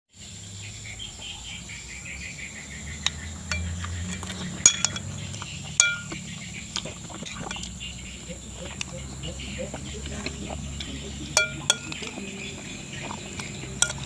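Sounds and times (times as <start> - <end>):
insects chirring: 0.1 - 14.0
utensil clinking against dish: 3.0 - 14.0.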